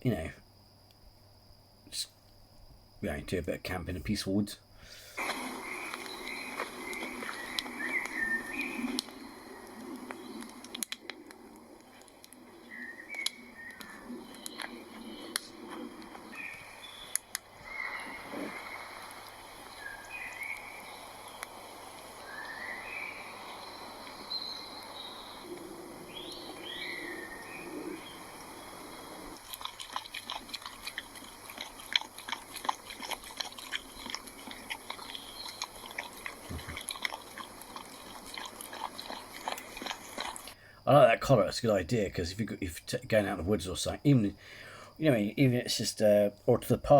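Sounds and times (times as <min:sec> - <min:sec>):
soft steady hiss: 0:00.0 - 0:46.9
woodland birds chirping: 0:04.9 - 0:29.3, 0:30.3 - 0:40.6
sharp crunching clicks: 0:05.2 - 0:12.5, 0:13.1 - 0:17.5, 0:29.4 - 0:40.6.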